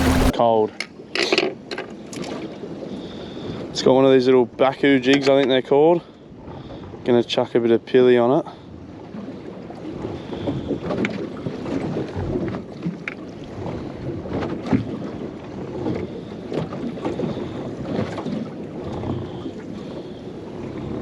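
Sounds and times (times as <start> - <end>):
wind buffeting microphone: 0.0 - 0.4
water lapping against boat hull: 0.0 - 21.0.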